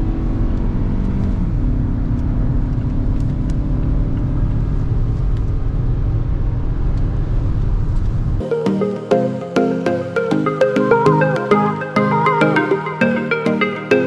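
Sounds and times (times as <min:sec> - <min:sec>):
car engine and tyre rumble: 0:00.0 - 0:08.4.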